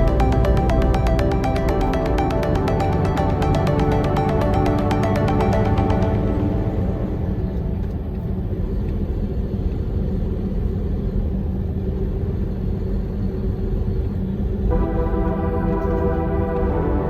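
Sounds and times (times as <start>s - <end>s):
music: 0.0s - 8.7s, 14.7s - 17.0s.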